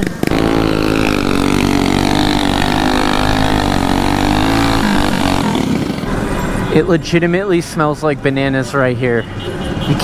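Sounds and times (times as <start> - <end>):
engine running at high revs: 0.0 - 6.4.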